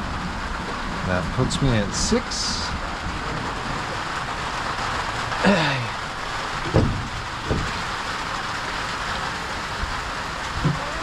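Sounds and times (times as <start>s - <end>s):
light rain hissing: 0.0s - 11.0s
dull knocks: 6.6s - 8.0s, 10.6s - 11.0s.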